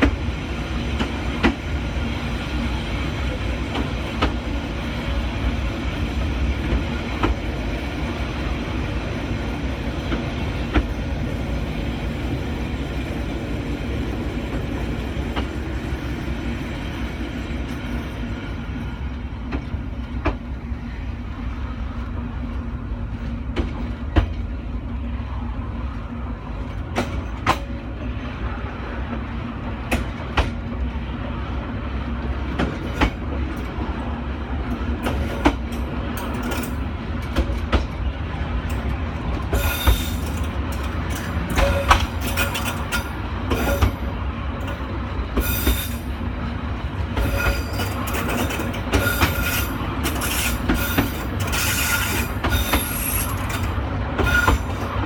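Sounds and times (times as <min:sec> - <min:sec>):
train rumble: 0:00.0 - 0:55.0
wheels clicking on track: 0:32.1 - 0:55.0.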